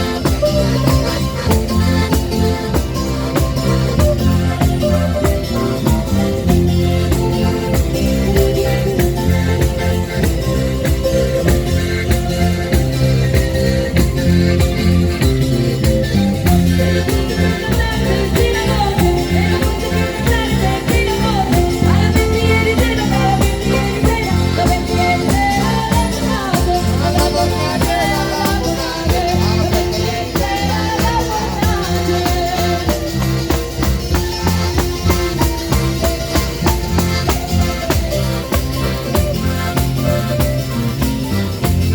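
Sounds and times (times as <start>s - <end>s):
band music through a pa: 0.0s - 41.9s
person singing: 16.9s - 33.4s.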